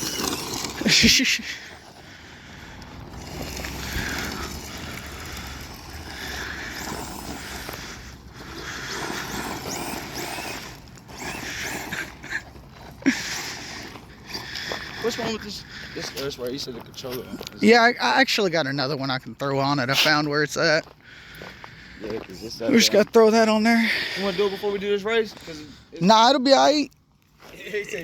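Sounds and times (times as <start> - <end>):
electric motors whirring: 0.0 - 16.0
tyres on gravel: 0.0 - 28.0.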